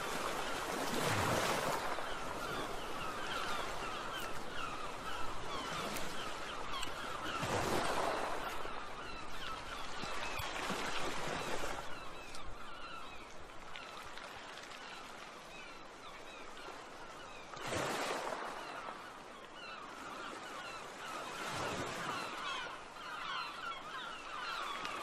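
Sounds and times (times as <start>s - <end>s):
many birds chirping: 14.9s - 25.0s.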